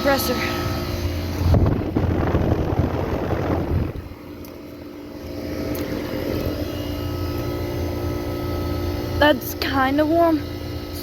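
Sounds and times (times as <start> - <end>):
air conditioner hum: 0.0 - 11.0
air rushing over microphone: 1.4 - 4.1.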